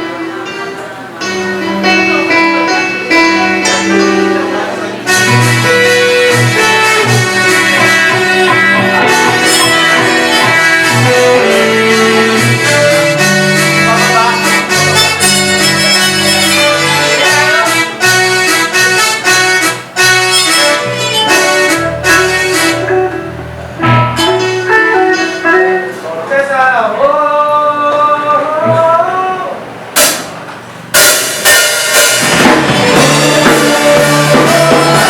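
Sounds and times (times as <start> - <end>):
worship band playing: 0.0 - 35.0
drum hits: 5.1 - 16.2, 30.0 - 35.0.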